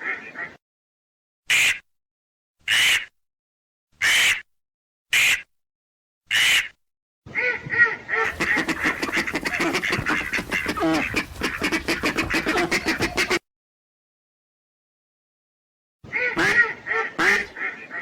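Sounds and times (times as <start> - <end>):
ducks quacking: 8.3 - 13.4, 16.1 - 18.0
short harsh calls: 8.3 - 13.4.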